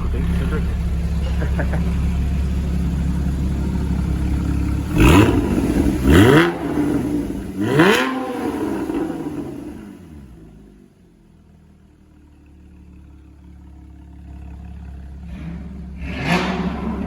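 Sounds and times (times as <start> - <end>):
car engine revving: 0.0 - 10.8, 14.4 - 17.0
engine idling: 0.0 - 17.0.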